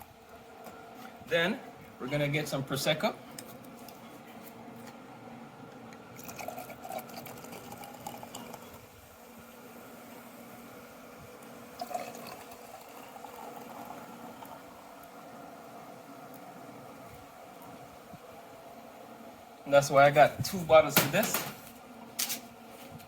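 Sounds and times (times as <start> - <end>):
liquid pouring into a glass: 6.2 - 8.8, 11.7 - 14.8.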